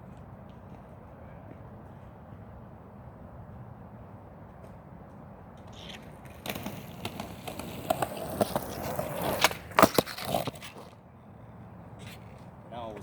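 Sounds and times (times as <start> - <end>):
skateboard wheels rolling on concrete: 0.0 - 13.0
skateboard clacks and slaps: 5.8 - 11.0.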